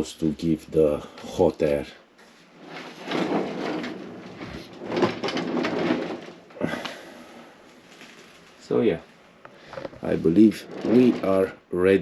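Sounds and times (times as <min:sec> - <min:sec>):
rubbing and scraping handling noise: 0:02.2 - 0:11.8.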